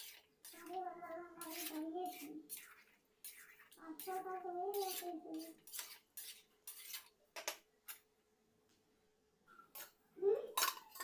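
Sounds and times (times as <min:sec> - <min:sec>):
metal spoon scraping a pot: 0:00.0 - 0:07.2, 0:09.7 - 0:11.0.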